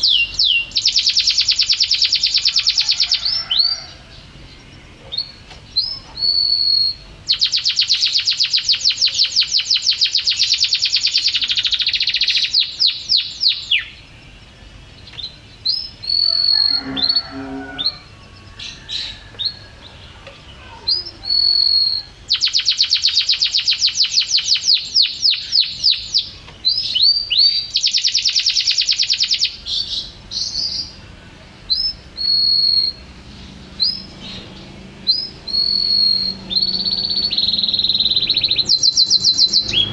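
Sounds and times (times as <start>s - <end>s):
canary rapid high trills: 16.0s - 18.1s, 35.1s - 39.9s.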